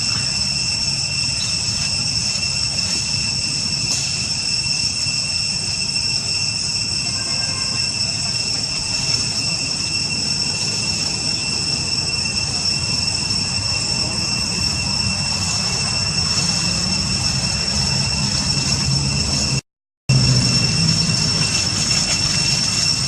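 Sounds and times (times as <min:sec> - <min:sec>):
high-pitched whine: 0:00.0 - 0:23.0
low rumble: 0:13.6 - 0:23.0.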